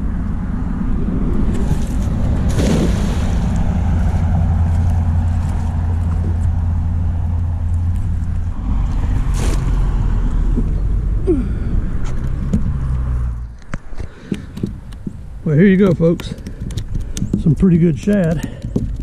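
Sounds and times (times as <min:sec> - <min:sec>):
outboard motor droning: 0:00.0 - 0:11.9.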